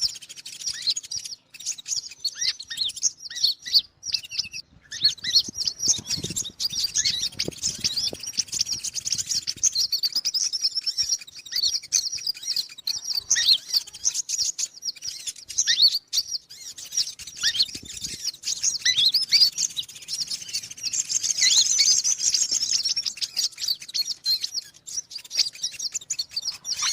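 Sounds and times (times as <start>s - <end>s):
rapid high-pitched bird chirps: 0.0s - 26.9s.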